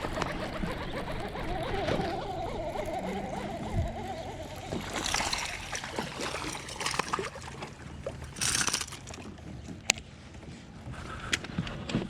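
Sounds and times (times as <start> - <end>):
water splashing against kayak: 1.5 - 11.3
hissing splash: 4.4 - 9.2.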